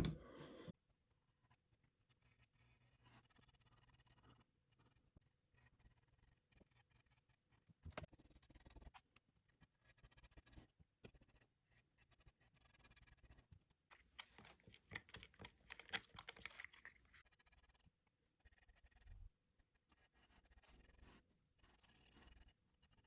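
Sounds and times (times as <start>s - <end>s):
small clicks: 13.9s - 17.0s.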